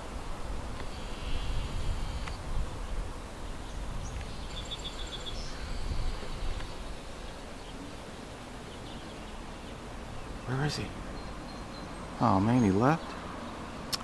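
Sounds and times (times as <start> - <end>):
wind rumble on microphone: 0.0 - 7.7
faint high buzz: 0.0 - 11.3
small bird calling: 0.8 - 14.0.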